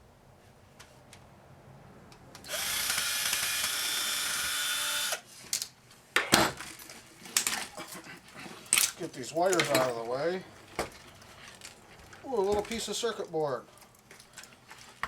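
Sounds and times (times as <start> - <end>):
cordless drill spinning: 2.4 - 5.3.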